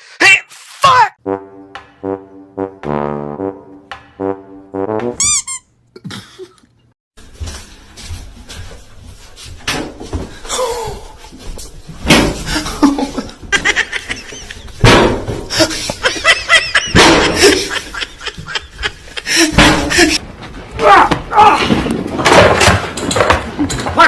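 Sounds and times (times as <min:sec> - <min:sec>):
people laughing: 0:12.5 - 0:14.8, 0:15.5 - 0:20.2
loud thumps: 0:14.8 - 0:15.6, 0:16.9 - 0:17.6, 0:19.5 - 0:20.2.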